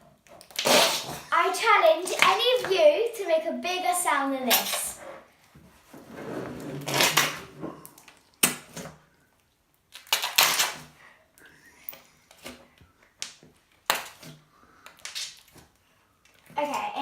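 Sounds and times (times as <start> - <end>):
slime popping and squelching: 0.4 - 2.7, 6.9 - 10.8.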